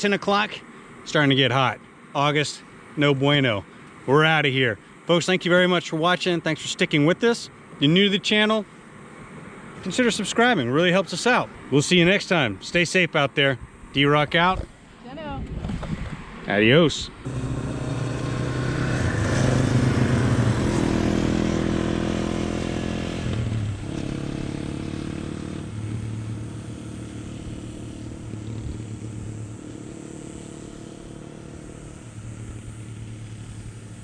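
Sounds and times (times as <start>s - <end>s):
motorcycle engines pulling away: 17.2s - 34.0s.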